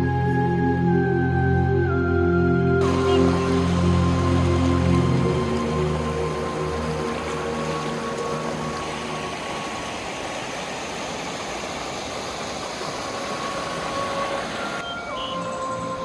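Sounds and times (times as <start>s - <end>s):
faint background music: 0.0s - 9.0s
rushing water: 2.8s - 16.0s.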